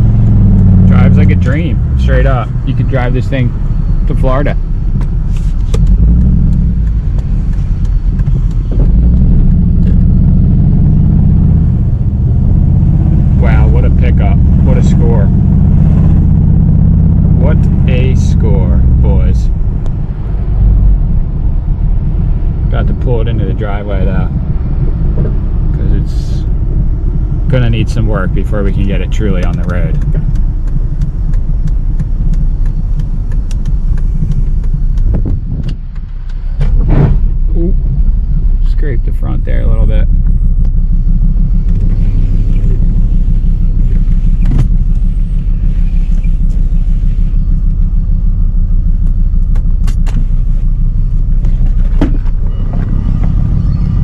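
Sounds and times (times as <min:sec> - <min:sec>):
car engine and road rumble: 0:00.0 - 0:54.0
sharp clicks: 0:29.3 - 0:36.7.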